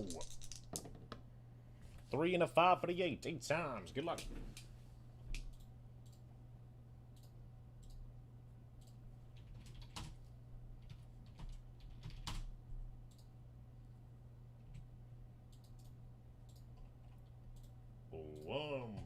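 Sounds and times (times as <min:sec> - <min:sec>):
low electrical hum: 0:00.0 - 0:19.0
computer keyboard and mouse clicks: 0:08.8 - 0:10.2, 0:10.8 - 0:12.5, 0:15.5 - 0:17.8.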